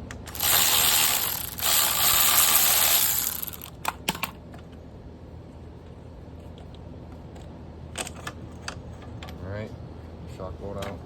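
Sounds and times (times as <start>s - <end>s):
impact wrench hammering: 0.3s - 3.7s.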